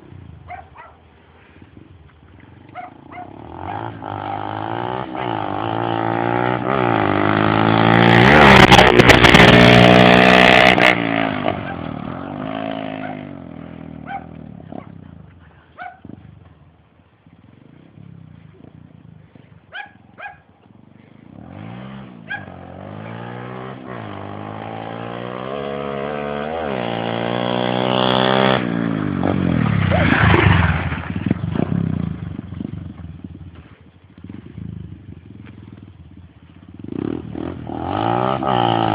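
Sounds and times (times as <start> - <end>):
small motorcycle engine revving: 2.9 - 15.1, 21.0 - 38.9.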